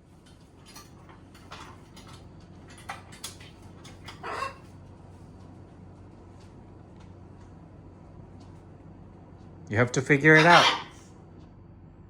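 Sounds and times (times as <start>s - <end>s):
macaw low call: 10.3s - 11.0s.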